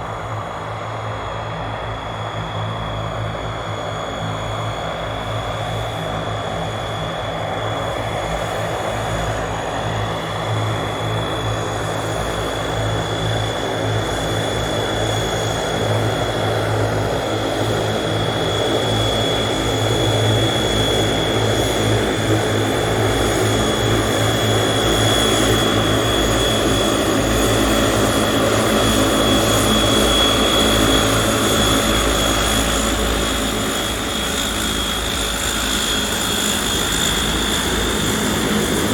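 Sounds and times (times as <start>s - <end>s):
propeller drone: 0.0s - 38.9s
turboprop engine whine: 0.0s - 38.9s.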